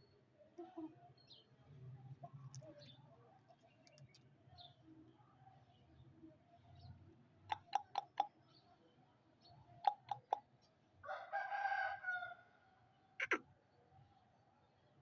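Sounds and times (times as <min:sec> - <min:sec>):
rooster crowing: 0:11.0 - 0:12.4.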